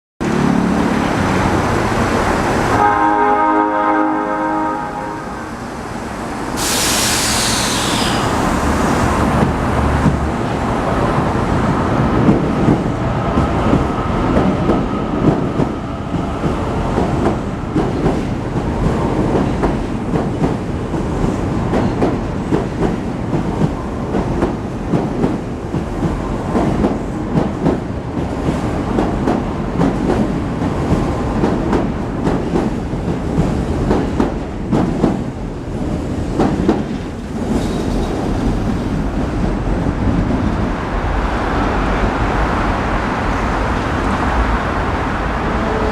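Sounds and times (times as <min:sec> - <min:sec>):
subway train motor whine: 0:00.3 - 0:17.7
train wheels clattering over rail joints: 0:36.2 - 0:39.6.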